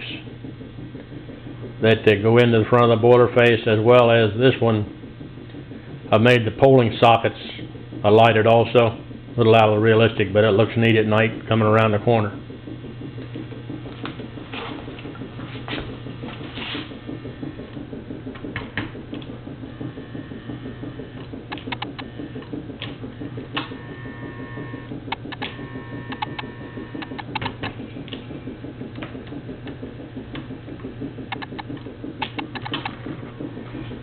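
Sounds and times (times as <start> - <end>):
model train motor hum: 23.0 - 27.3.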